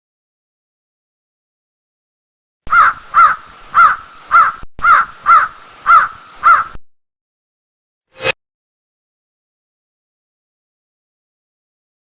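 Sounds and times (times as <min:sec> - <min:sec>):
bird harsh calls: 0:02.7 - 0:06.8.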